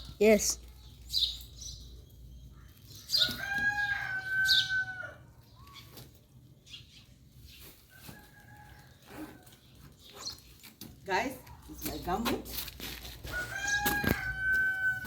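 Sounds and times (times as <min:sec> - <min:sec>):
rooster crowing: 0:03.3 - 0:05.3, 0:13.3 - 0:15.0.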